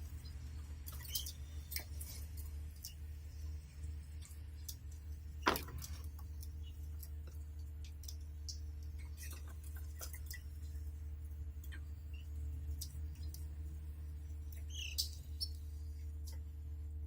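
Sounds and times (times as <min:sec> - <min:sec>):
steady low hum: 0:00.0 - 0:17.0
sharp knock: 0:05.5 - 0:05.9.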